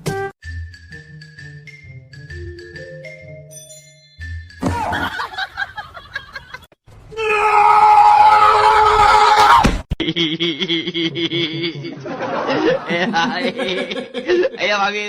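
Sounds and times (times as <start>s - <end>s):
loud scream: 7.1s - 9.8s.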